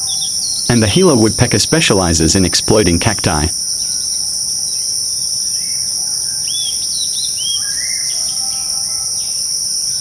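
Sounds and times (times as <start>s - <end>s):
insects trilling: 0.0s - 10.0s
bird chirps: 5.6s - 10.0s.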